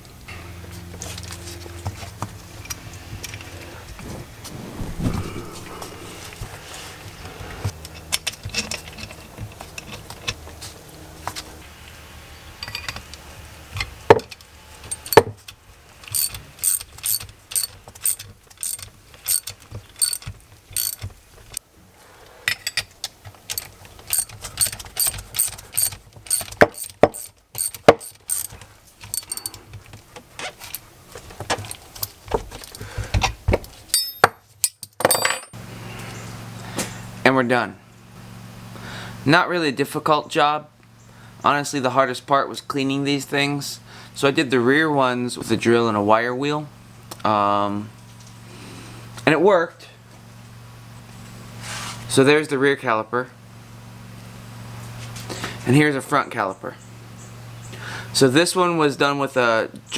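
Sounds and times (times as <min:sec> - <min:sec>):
metallic clicks and clacks: 0:14.9 - 0:15.3, 0:16.1 - 0:21.1, 0:23.5 - 0:29.6.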